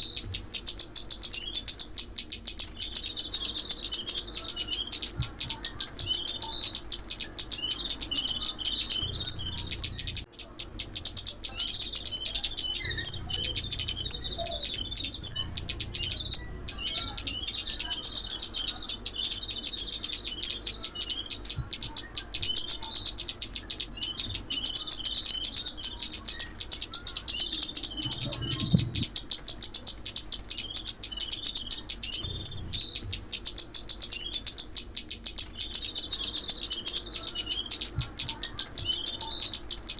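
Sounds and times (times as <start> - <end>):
high-pitched bird twittering: 0.0 - 39.9.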